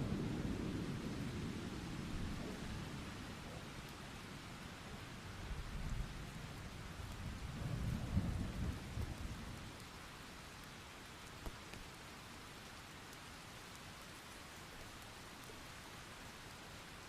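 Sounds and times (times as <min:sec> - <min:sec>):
distant thunder rumble: 0:00.0 - 0:09.7
steady rain: 0:00.0 - 0:17.0.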